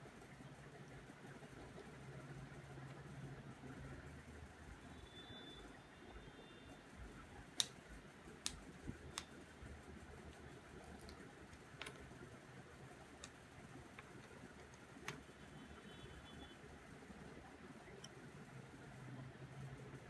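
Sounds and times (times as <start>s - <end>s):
faint steady hiss: 0.0s - 20.0s
sharp little clicks and taps: 7.2s - 15.4s.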